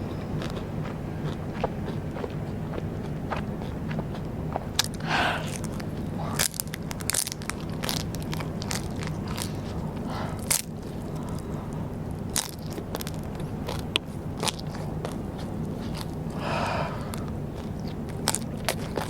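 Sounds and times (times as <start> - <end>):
low background hum: 0.0 - 19.0
crisp snack crunching: 4.8 - 11.5, 12.3 - 16.4, 17.0 - 19.0.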